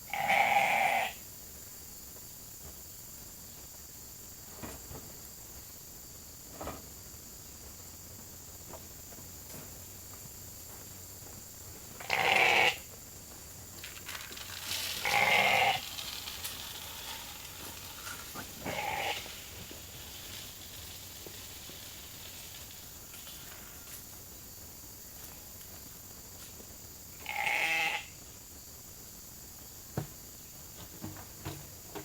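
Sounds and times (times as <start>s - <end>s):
sheep bleating: 0.1s - 1.2s, 12.0s - 12.8s, 15.0s - 15.9s, 18.6s - 19.4s, 27.2s - 28.1s.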